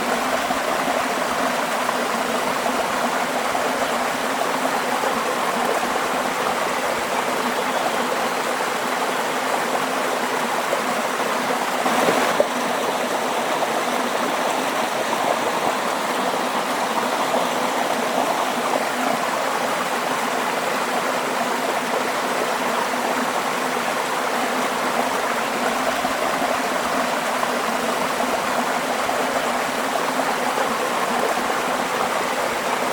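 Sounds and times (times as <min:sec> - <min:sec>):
waterfall rushing and splashing: 0:08.7 - 0:32.9.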